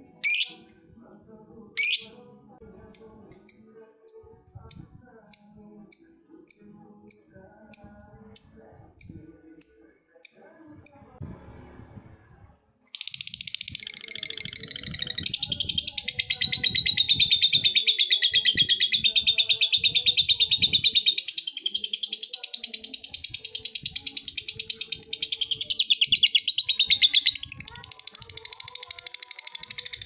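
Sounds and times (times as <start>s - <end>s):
lovebird chirps: 0.2s - 0.6s, 1.8s - 2.2s.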